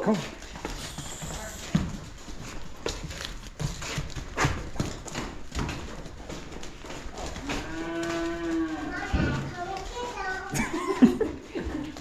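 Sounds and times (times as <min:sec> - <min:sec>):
cattle hooves clattering: 0:00.0 - 0:12.0
steer mooing: 0:07.4 - 0:09.4.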